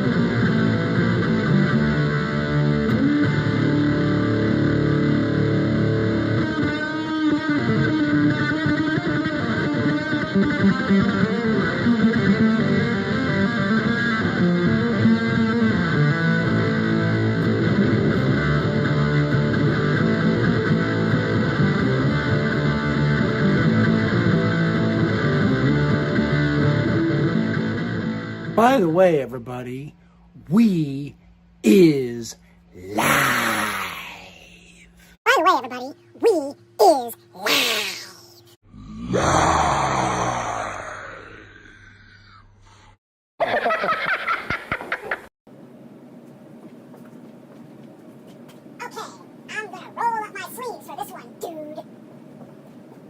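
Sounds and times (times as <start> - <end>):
electric guitar playing: 0.0 - 28.9
bass line: 14.5 - 29.0.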